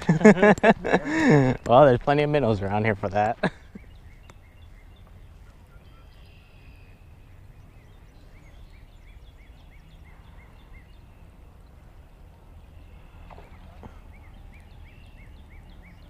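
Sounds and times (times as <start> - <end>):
bird calling: 3.3 - 11.1, 12.7 - 16.0.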